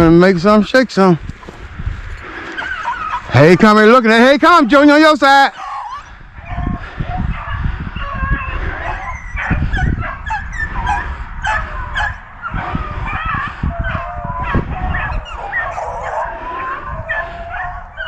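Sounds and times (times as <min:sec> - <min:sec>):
dogs baying in chorus: 0:02.2 - 0:03.4, 0:05.5 - 0:18.0.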